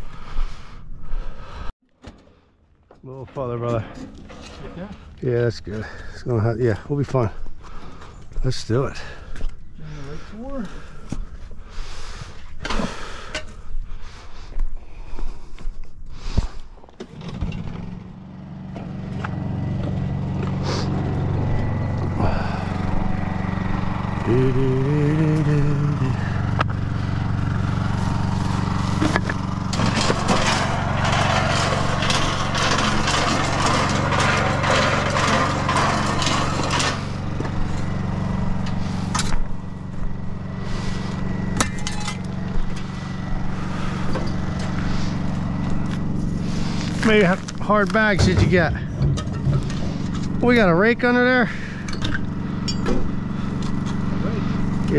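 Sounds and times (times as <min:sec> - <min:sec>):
small gasoline engine running: 0:17.0 - 0:54.9.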